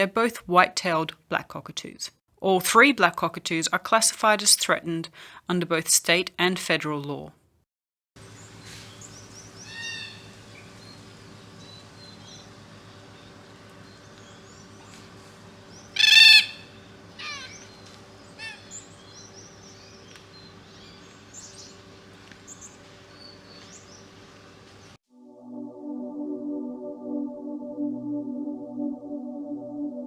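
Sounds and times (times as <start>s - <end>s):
small birds chirping: 8.2s - 25.0s
steady low hum: 8.2s - 25.0s
cockatoos calling: 8.8s - 24.5s.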